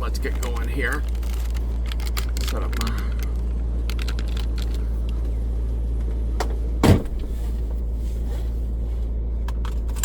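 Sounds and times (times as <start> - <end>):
car engine idling: 0.0 - 10.0
heavy thump: 6.4 - 7.5.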